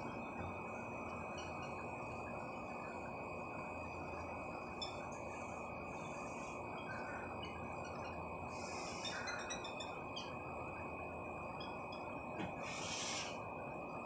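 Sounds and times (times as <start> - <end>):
low rush of background noise: 0.0 - 14.0
thin high whine: 0.0 - 14.0.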